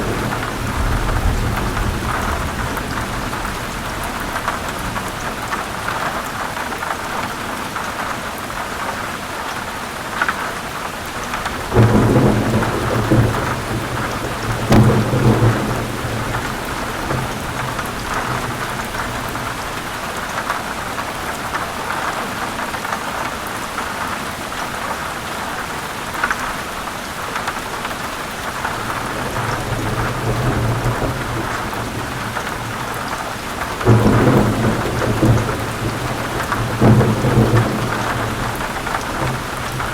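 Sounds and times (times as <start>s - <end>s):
low thunder rolls: 0.0s - 6.0s, 11.4s - 19.9s, 28.6s - 39.9s
heavy rain falling: 0.0s - 39.9s.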